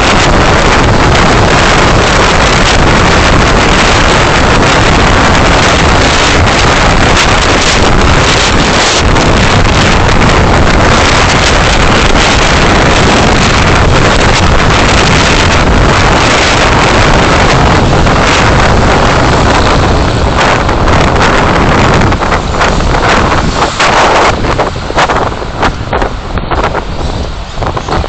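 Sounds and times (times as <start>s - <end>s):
road and engine noise: 0.0s - 28.0s
wind buffeting microphone: 0.0s - 28.0s.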